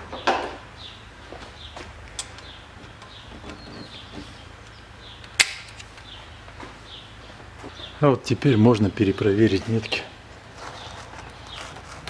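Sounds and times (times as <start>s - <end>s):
small bird chirping: 0.2s - 5.4s, 10.4s - 12.0s.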